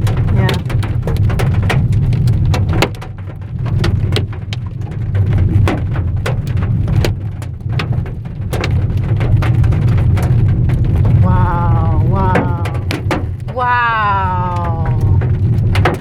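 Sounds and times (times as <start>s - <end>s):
hailstones hitting a car: 0.0s - 11.2s, 15.2s - 16.0s.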